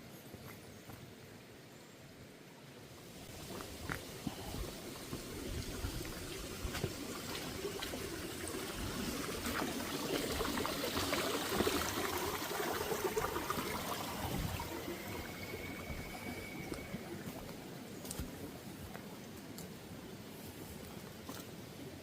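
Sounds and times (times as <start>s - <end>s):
creek trickling over rocks: 2.8s - 22.0s.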